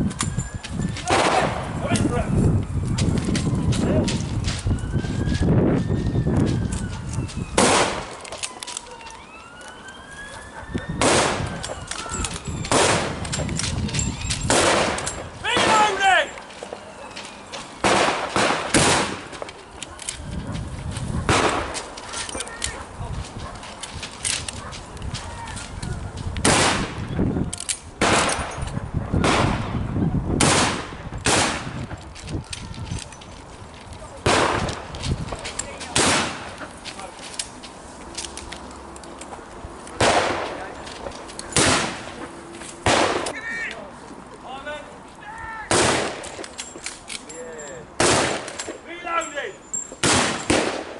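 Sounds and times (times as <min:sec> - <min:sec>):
siren: 0:00.0 - 0:01.1, 0:02.2 - 0:14.4, 0:16.6 - 0:17.8, 0:19.3 - 0:20.4
loud gunshots: 0:01.1 - 0:01.6, 0:07.6 - 0:08.1, 0:11.0 - 0:11.4, 0:12.7 - 0:13.2, 0:14.5 - 0:16.0, 0:17.8 - 0:19.3, 0:21.3 - 0:21.8, 0:26.4 - 0:27.0, 0:28.0 - 0:28.5, 0:29.2 - 0:29.8, 0:30.4 - 0:31.8, 0:34.2 - 0:34.8, 0:36.0 - 0:36.5, 0:40.0 - 0:40.6, 0:41.6 - 0:42.1, 0:42.8 - 0:43.3, 0:45.7 - 0:46.2, 0:48.0 - 0:48.5, 0:50.0 - 0:50.9
gunshots firing blanks: 0:12.7 - 0:13.2, 0:17.8 - 0:19.3.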